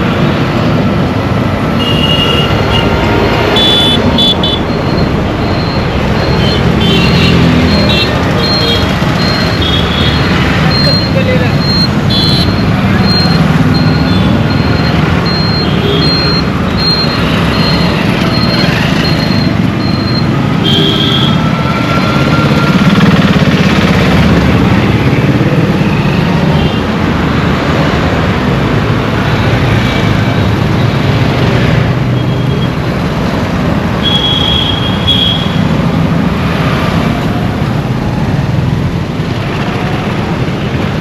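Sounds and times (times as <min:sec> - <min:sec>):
traffic engine and tyre noise: 0:00.0 - 0:41.0
high beep: 0:03.6 - 0:06.7, 0:07.5 - 0:20.4.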